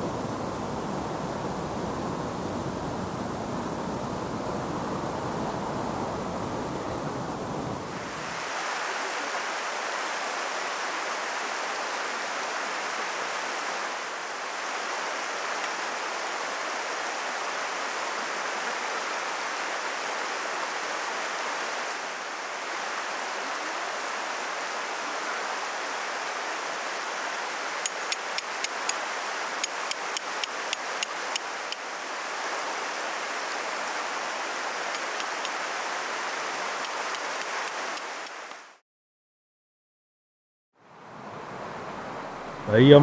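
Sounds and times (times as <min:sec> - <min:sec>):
stream water rushing: 0:00.0 - 0:38.8, 0:40.8 - 0:43.0
sharp high pings: 0:27.8 - 0:28.9, 0:29.6 - 0:32.0.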